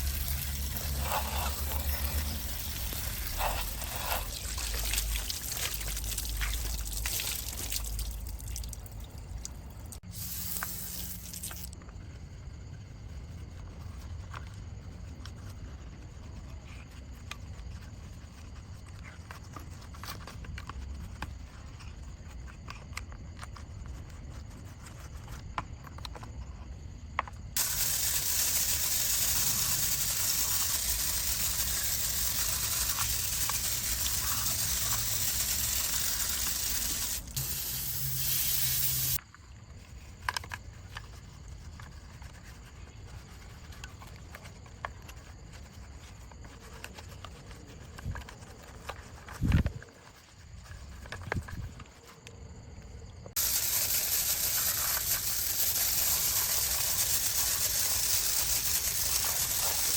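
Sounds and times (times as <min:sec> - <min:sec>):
water spray hissing: 0:00.0 - 0:11.8, 0:27.6 - 0:39.2, 0:53.4 - 0:59.9.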